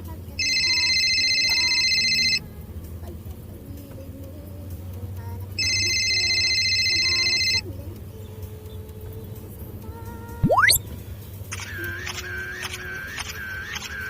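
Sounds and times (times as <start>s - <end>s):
electronic ringing tone: 0.4s - 2.4s, 5.6s - 7.6s, 10.4s - 10.8s.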